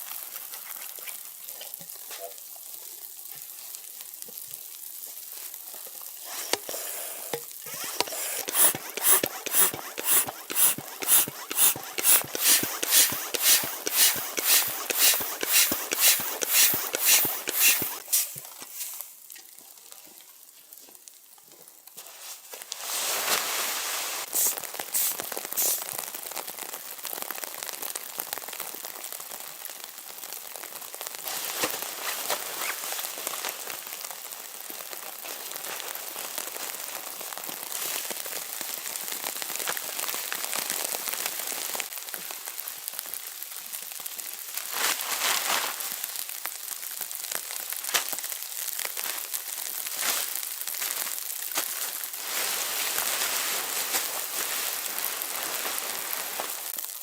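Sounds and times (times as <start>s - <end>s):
steady crackling hiss: 3.5s - 19.3s, 21.9s - 29.6s
quick even strokes: 6.3s - 6.8s, 7.7s - 18.3s.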